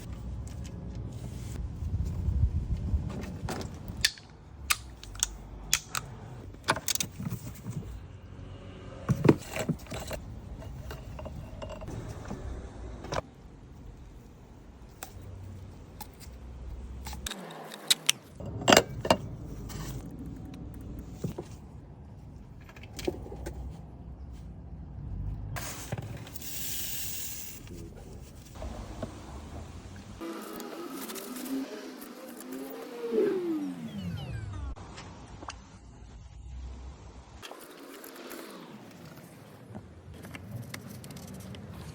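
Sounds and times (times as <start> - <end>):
low steady rumble: 0.0 - 6.6
metal tools clinking and clanking: 17.7 - 20.0.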